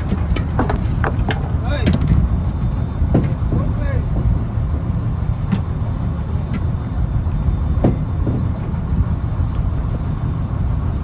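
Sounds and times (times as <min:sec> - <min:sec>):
diesel engine low rumble: 0:00.0 - 0:11.0
short knocks: 0:07.8 - 0:08.7.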